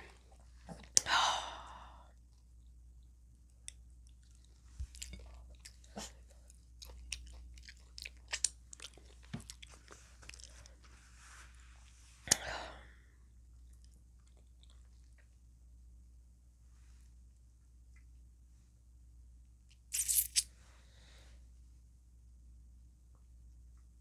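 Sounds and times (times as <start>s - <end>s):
chewing crunchy taco shell: 2.3s - 11.0s, 13.6s - 15.3s.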